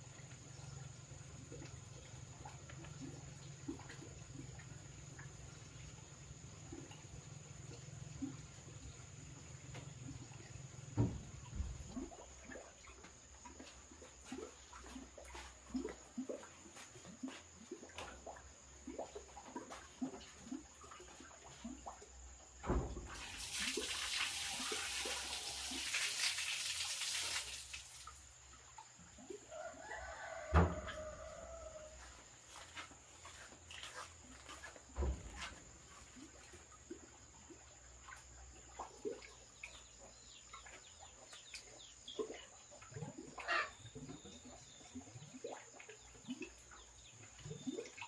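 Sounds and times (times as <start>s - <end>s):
rushing water: 9.7s - 28.5s.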